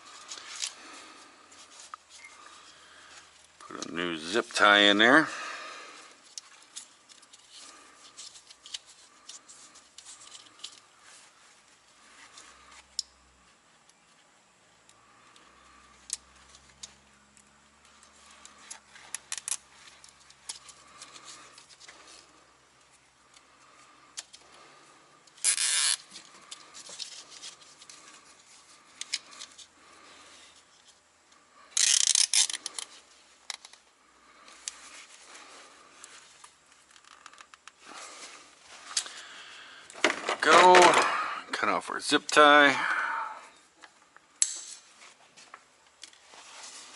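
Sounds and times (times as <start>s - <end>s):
clicks and rubbing of wiring: 6.2s - 10.9s, 17.8s - 22.2s, 31.8s - 33.9s, 36.0s - 37.8s, 39.9s - 41.1s
zip tie rasping: 25.4s - 29.6s, 31.7s - 33.1s.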